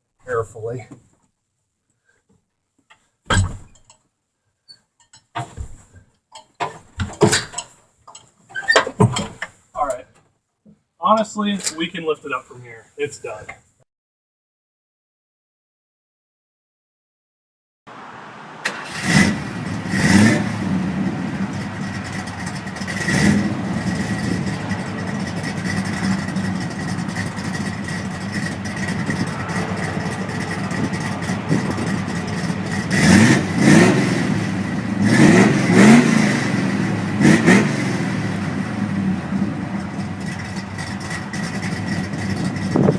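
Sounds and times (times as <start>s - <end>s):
car engine revving: 17.9s - 42.9s
car engine idling with whine: 18.8s - 42.9s.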